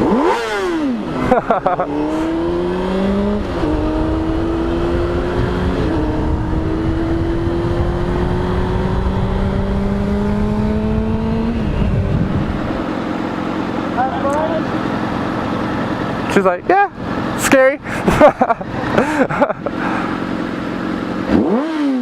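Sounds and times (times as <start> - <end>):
motorcycle engine running: 0.0 - 22.0
wind rushing: 2.0 - 13.0.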